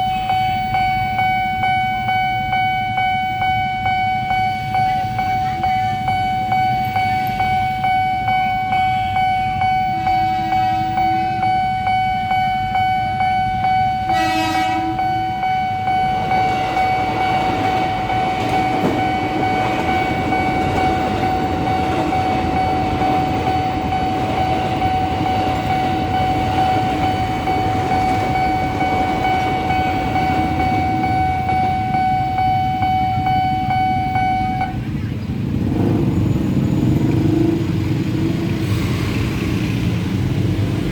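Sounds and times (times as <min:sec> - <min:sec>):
level crossing warning bell ringing: 0:00.0 - 0:35.0
train passing with wheel clatter: 0:04.3 - 0:40.9
train horn blast: 0:14.1 - 0:15.1.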